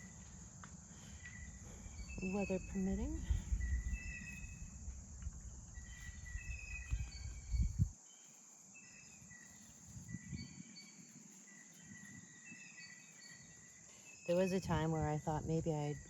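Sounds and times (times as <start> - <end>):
crickets chirring: 0.0 - 16.0
birds whistling: 0.9 - 4.8, 5.7 - 7.8.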